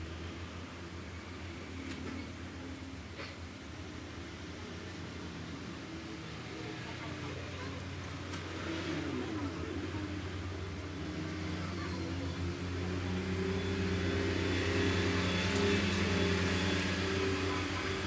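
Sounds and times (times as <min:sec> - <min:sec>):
steady motor hum: 0:09.4 - 0:18.0.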